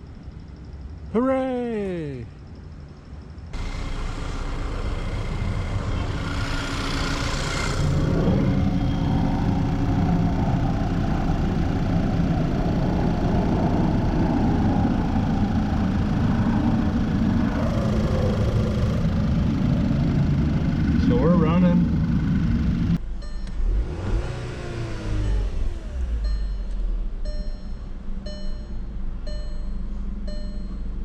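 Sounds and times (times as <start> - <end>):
car engine idling roughly: 3.6 - 23.0.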